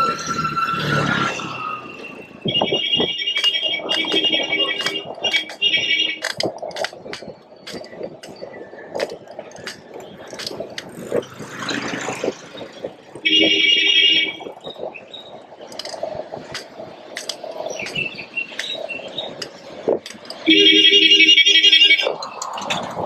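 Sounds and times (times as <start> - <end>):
city street traffic: 0.0 - 23.0
vehicle horn honking: 2.5 - 6.3, 13.2 - 14.4, 20.5 - 22.1
clicks and rattles: 2.6 - 11.3, 15.7 - 18.8, 19.4 - 20.4.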